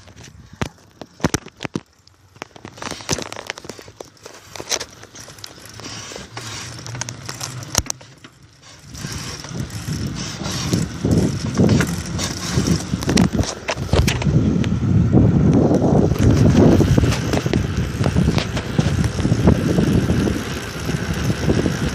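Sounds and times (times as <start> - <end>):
bicycle clicks and rattles: 0.0 - 21.9
wind buffeting microphone: 8.6 - 21.9.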